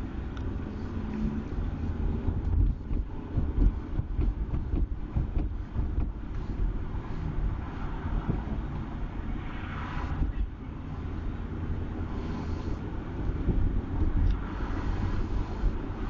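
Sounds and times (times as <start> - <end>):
road and engine rumble: 0.0 - 16.0
hiss: 12.1 - 12.8, 14.5 - 15.8.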